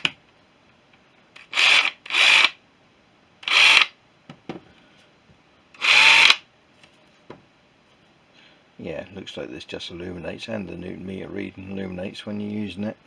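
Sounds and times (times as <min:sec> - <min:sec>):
impact wrench motor bursts: 0:01.4 - 0:02.6, 0:03.4 - 0:04.0, 0:05.8 - 0:06.4.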